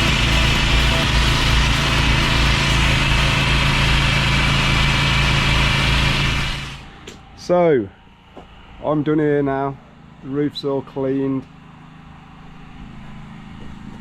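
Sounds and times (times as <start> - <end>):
pressure washer engine running: 0.0 - 7.0.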